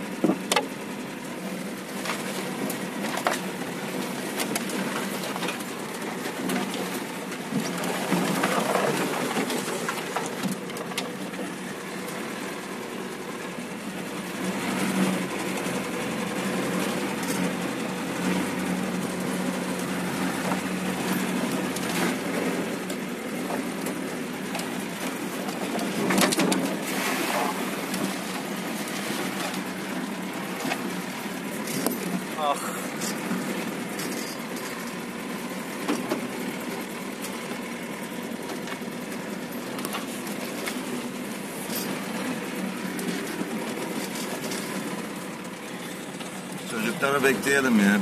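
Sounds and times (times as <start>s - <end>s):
off-road vehicle engine running: 0.0s - 48.0s.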